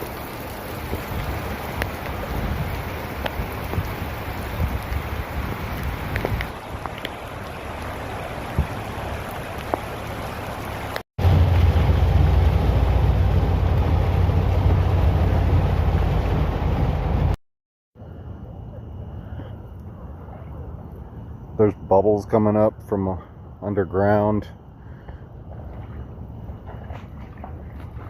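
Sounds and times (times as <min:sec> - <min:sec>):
raindrop ticks: 0:00.0 - 0:11.0
rain falling: 0:00.0 - 0:17.4
steady low rumble: 0:11.2 - 0:17.4, 0:22.7 - 0:28.0.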